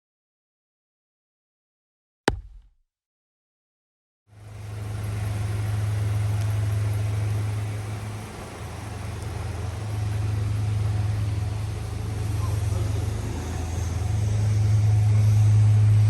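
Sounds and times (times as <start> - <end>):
car engine idling: 4.4 - 15.6.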